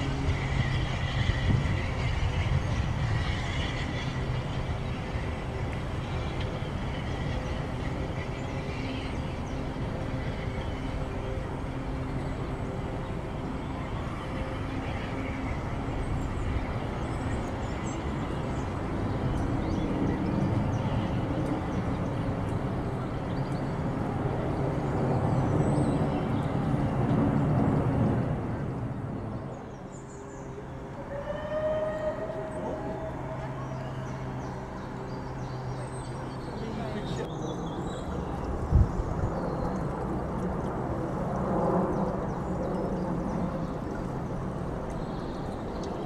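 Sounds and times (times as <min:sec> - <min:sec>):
train coaches rolling by: 0:00.0 - 0:29.5, 0:30.2 - 0:37.3.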